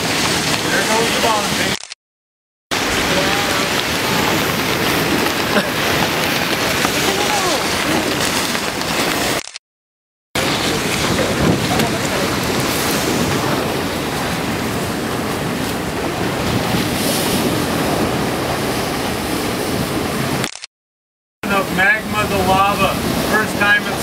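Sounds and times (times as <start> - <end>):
ocean surf rushing: 0.0 - 2.0, 2.7 - 9.5, 10.4 - 20.6, 21.4 - 24.0
wind buffeting microphone: 2.7 - 9.4, 10.4 - 20.4.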